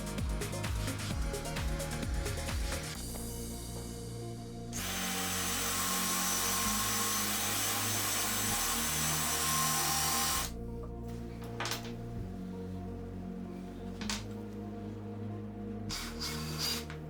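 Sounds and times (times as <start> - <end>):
background music: 0.0 - 17.0
power tool running: 4.7 - 10.6.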